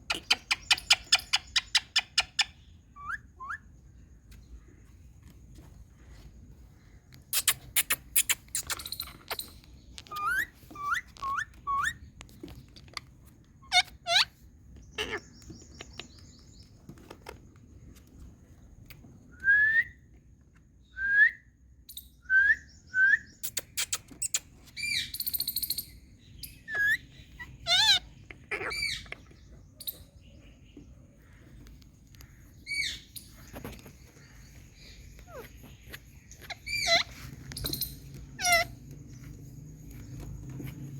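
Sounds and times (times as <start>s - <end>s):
parakeet chirping and whistling: 10.1s - 12.0s, 36.4s - 38.8s.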